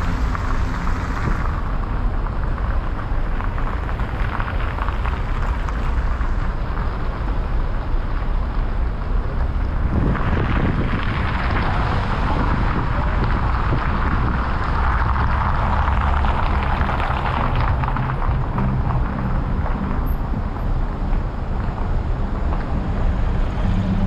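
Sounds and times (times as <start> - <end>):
road traffic rumble: 0.0 - 24.0
wind buffeting microphone: 9.4 - 24.0.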